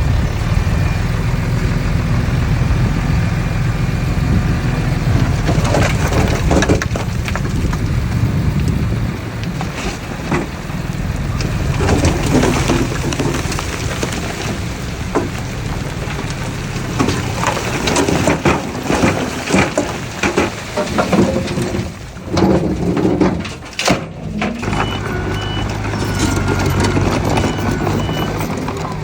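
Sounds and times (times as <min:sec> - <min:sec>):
diesel machinery running: 0:00.0 - 0:29.0
metal knocks and clanks: 0:15.0 - 0:29.0
reversing alarm beeps: 0:24.6 - 0:29.0.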